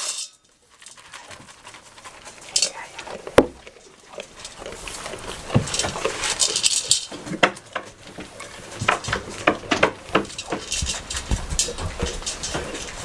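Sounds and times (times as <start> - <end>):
rain pattering: 0.4 - 13.0
sharp knocks and clicks: 5.5 - 13.0.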